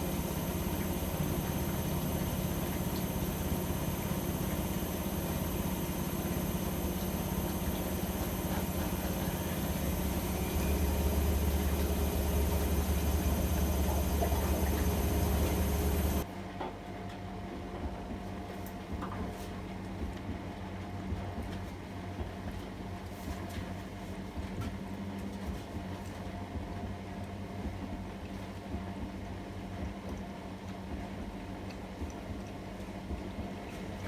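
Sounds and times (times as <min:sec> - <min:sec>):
washing machine motor humming: 0:00.0 - 0:16.3.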